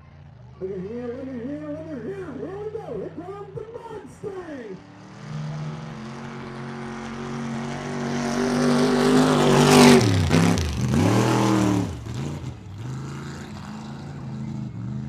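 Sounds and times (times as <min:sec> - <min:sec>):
truck engine revving in mud: 0:04.9 - 0:15.0.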